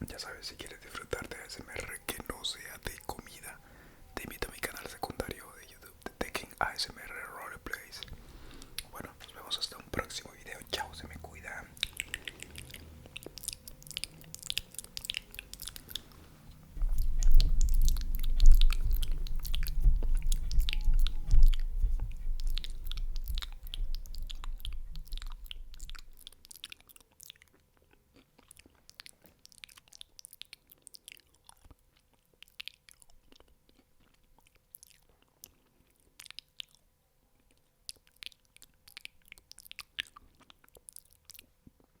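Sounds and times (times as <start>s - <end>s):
crunchy chewing and biting: 7.8s - 36.8s
heavy low rumble: 8.1s - 26.2s.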